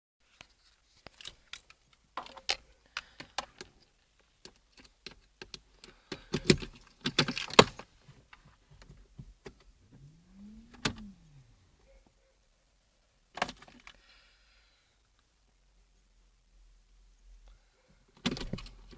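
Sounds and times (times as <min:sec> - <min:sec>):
rising and falling tone: 0:10.0 - 0:11.7.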